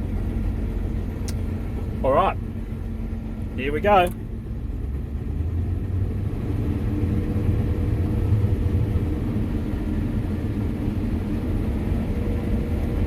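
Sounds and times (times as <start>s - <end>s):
combine harvester engine rumble: 0.0s - 13.0s
constant hum tones: 0.0s - 13.0s.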